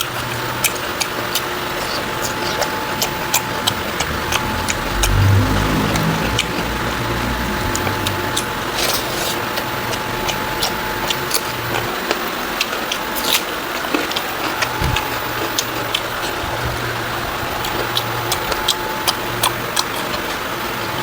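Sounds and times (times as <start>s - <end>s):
chewing with wet mouth clicks: 0.0s - 21.0s
low hum: 1.8s - 11.9s.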